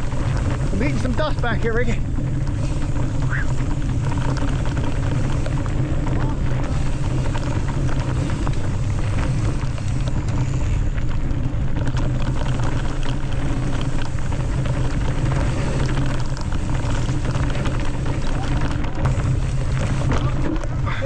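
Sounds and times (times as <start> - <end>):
gravel and bike rattles: 0.0 - 21.0
tyres rolling on dirt: 0.0 - 21.0
wind on microphone: 0.0 - 21.0.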